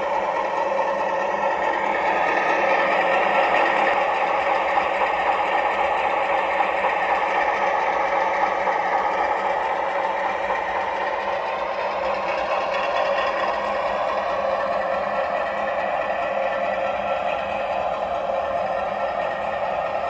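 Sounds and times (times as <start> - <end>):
model train whirring and rattling: 0.0 - 20.0.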